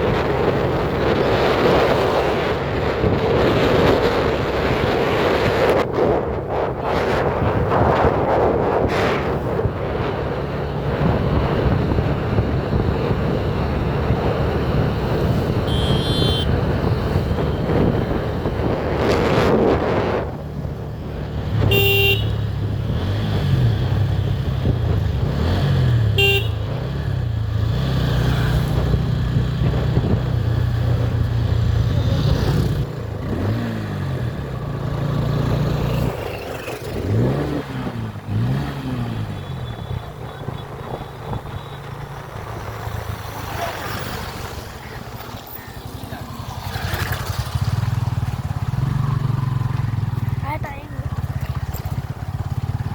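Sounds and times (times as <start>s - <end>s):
wind rushing over microphone: 0.0s - 26.2s, 26.9s - 45.2s
motorcycle engine revving: 0.0s - 52.9s
vehicle horn toots: 15.6s - 16.6s, 21.6s - 22.4s, 26.2s - 26.7s.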